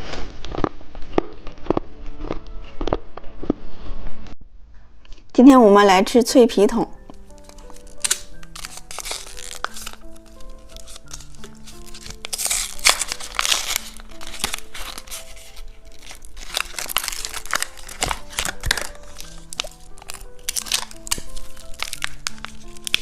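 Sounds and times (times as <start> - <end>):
background music with held notes: 0.0 - 23.0
plastic wrapping crinkling and tearing: 7.0 - 23.0.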